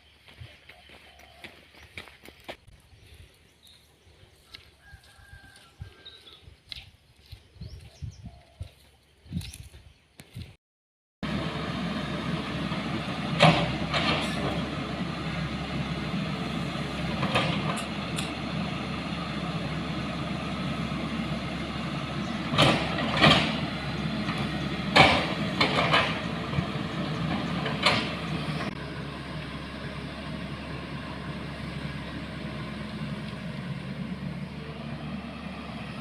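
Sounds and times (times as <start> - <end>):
motor vehicle running: 11.2 - 36.0
sharp rattles and knocks: 22.5 - 26.4.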